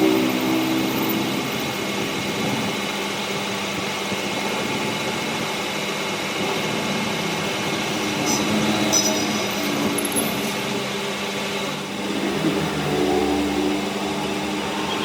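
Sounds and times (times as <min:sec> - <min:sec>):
metalworking machine hiss and hum: 0:00.0 - 0:15.0
faint high whine: 0:07.6 - 0:15.0.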